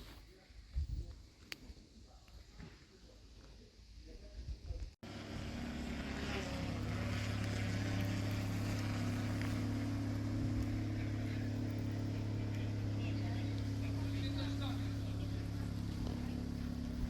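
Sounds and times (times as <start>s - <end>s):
car engine idling low: 5.1s - 17.0s.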